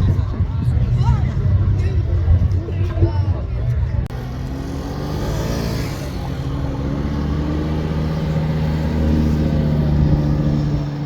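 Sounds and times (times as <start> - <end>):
car engine running at low revs: 3.7 - 11.0.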